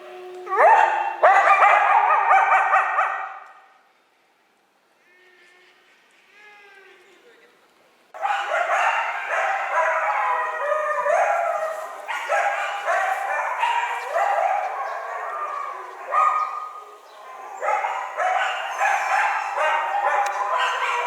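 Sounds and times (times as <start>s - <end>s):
coyotes yipping and howling: 0.0s - 3.2s, 8.2s - 21.0s.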